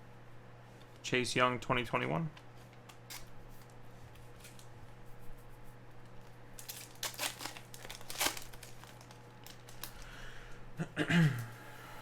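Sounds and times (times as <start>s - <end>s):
wrapper tearing and crinkling: 3.0s - 3.7s, 6.6s - 10.1s.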